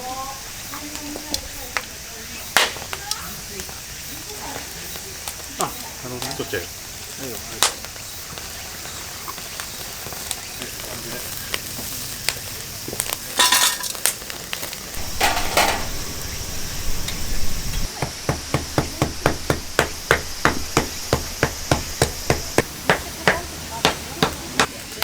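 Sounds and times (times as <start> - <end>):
food sizzling on a grill: 0.0 - 25.0
sharp even knocks: 17.9 - 24.4.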